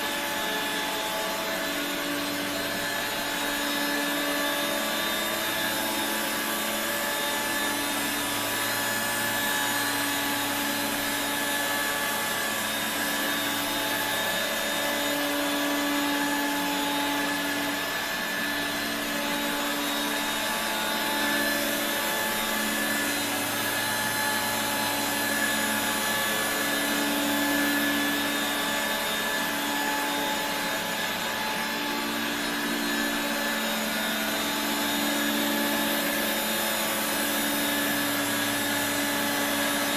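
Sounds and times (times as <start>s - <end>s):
stick vacuum motor whine: 0.0s - 39.9s.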